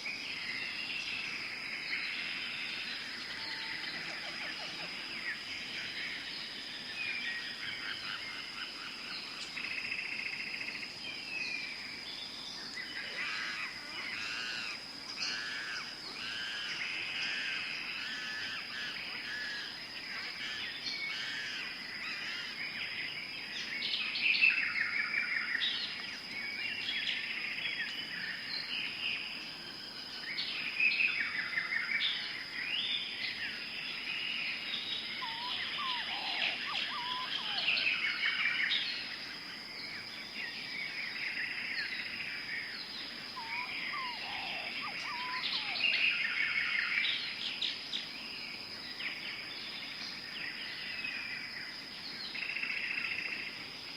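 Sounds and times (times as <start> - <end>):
birds chirping and calling: 11.4 - 28.9, 30.3 - 39.1, 39.8 - 48.2.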